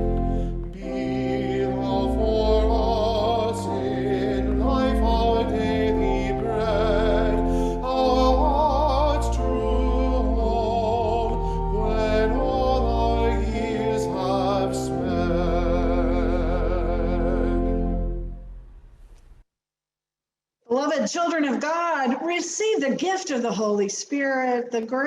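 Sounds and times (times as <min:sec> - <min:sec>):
classical singing with vibrato: 0:00.0 - 0:18.2
held low accompanying notes: 0:00.0 - 0:19.0.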